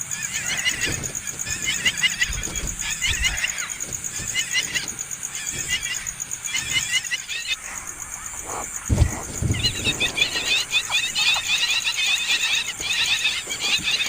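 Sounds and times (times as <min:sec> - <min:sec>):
baby birds chirping: 0:00.0 - 0:14.0
low thumps: 0:07.7 - 0:11.6.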